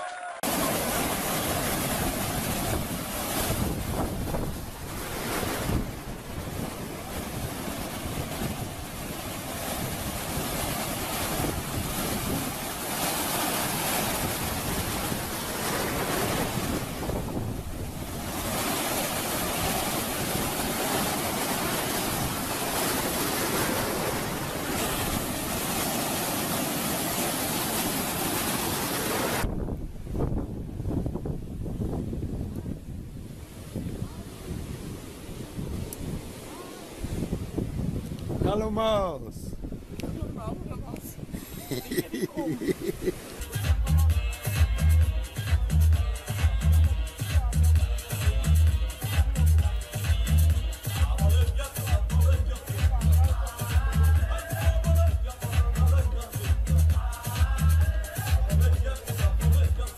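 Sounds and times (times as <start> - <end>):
ocean surf breaking: 0.0 - 31.0, 33.4 - 44.6
wind buffeting microphone: 0.5 - 25.7, 29.2 - 43.4.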